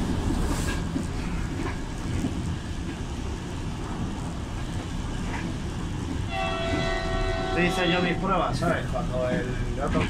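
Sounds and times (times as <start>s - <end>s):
train rumbling along track: 0.0s - 10.0s.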